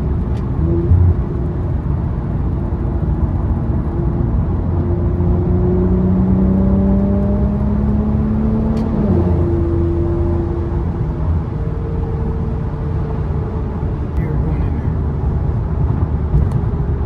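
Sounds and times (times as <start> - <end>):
car engine accelerating: 0.0 - 12.8.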